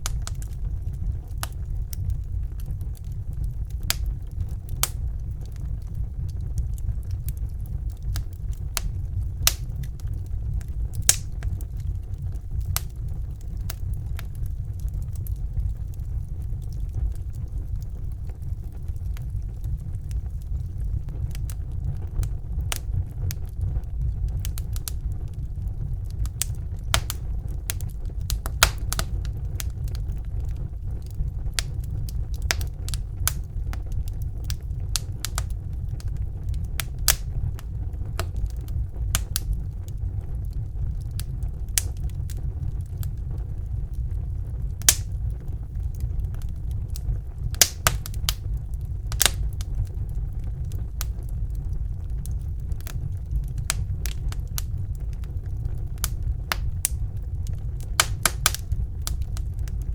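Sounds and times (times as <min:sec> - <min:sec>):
low rumble of flames: 0:00.0 - 0:59.9
wood fire crackling and popping: 0:00.0 - 0:59.9.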